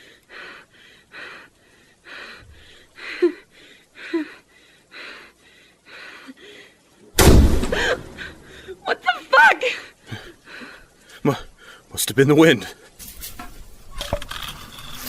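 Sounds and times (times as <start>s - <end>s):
woman gasping crying breaths: 0.0s - 7.0s, 7.7s - 8.8s.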